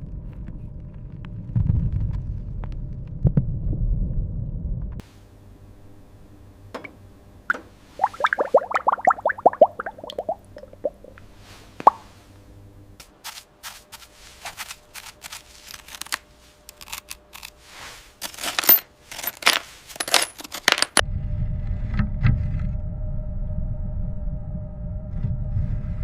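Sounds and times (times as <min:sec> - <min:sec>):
low rumble: 0:00.0 - 0:05.0, 0:21.0 - 0:26.0.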